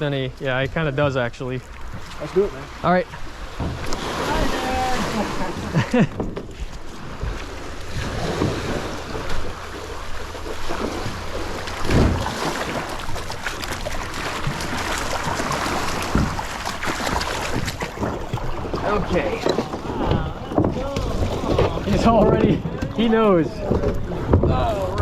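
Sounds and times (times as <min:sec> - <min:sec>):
water lapping at shore: 0:00.0 - 0:25.0
dull thumps: 0:10.7 - 0:25.0.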